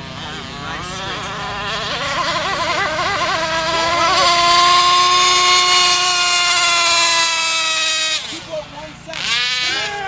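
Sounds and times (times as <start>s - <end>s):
rc speedboat engine whine: 0.0s - 10.0s.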